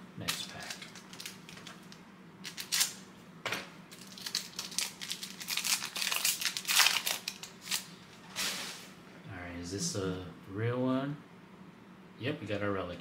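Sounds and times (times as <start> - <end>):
wrapper being torn and crinkled: 0.2 - 3.0, 3.9 - 8.6.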